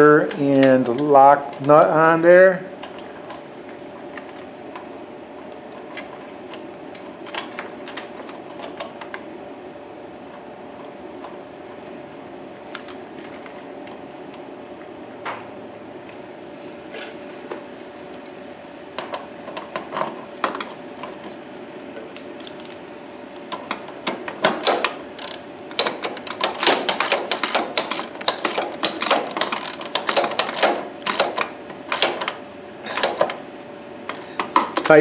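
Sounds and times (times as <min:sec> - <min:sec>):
faint steady hum: 0:00.0 - 0:35.0
socket ratchet clicking: 0:24.4 - 0:32.2.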